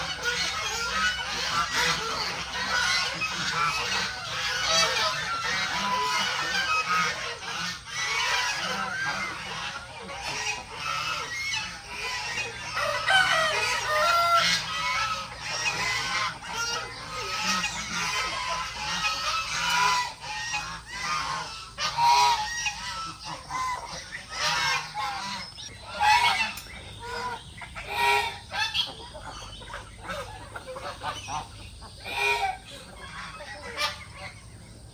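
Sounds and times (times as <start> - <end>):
chickens clucking: 0.0 - 34.9
geese honking: 0.0 - 34.9.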